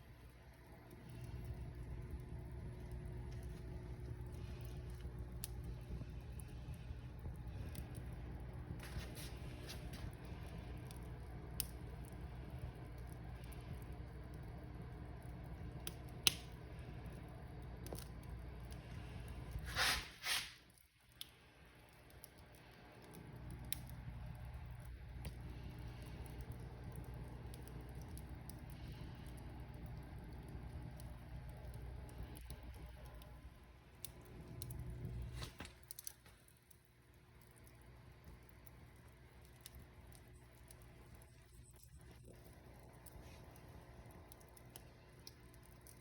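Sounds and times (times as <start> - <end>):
fire crackling: 0.0 - 46.0
fire low rumble: 0.0 - 46.0
hissing flares: 19.0 - 20.7.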